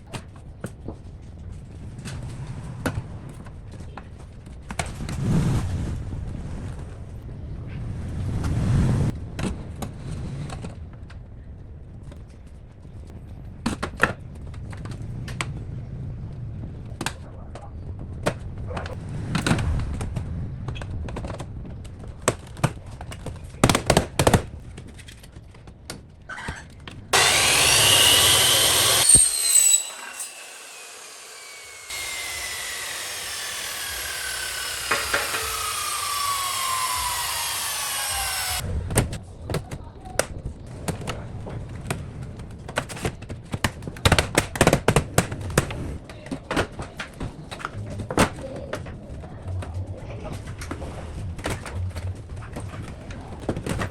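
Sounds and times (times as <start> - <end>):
power tool running: 27.2 - 38.6.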